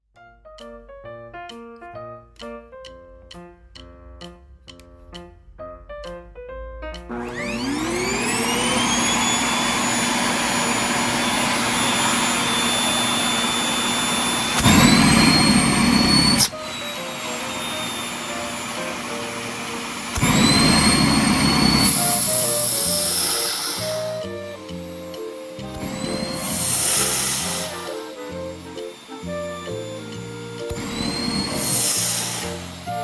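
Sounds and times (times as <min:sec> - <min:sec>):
vacuum cleaner motor whine: 0:07.1 - 0:33.0.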